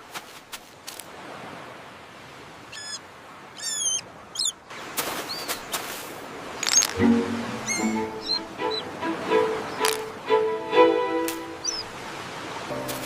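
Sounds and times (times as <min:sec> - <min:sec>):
bird chirping: 0:03.6 - 0:04.6, 0:07.6 - 0:08.9, 0:11.6 - 0:11.9.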